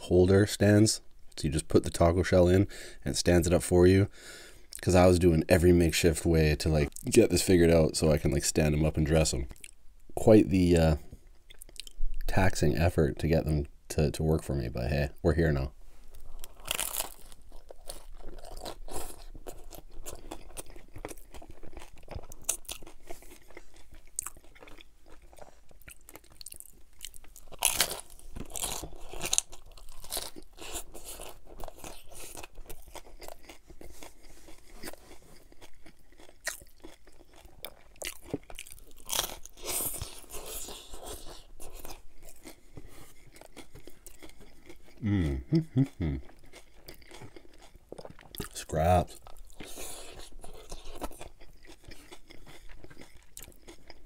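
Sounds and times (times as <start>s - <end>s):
crunchy taco chewing: 16.1s - 54.0s.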